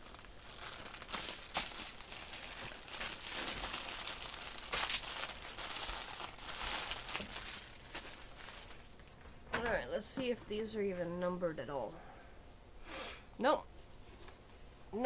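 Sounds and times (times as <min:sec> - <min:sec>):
plastic bags crinkling: 0:00.0 - 0:09.2.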